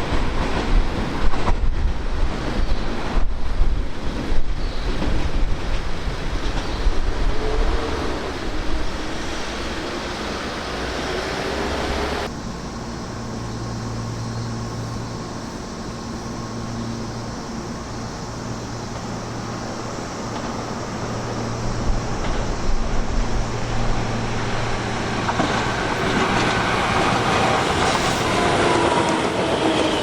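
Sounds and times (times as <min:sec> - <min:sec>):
electric train rumble and hiss: 0:00.0 - 0:30.0.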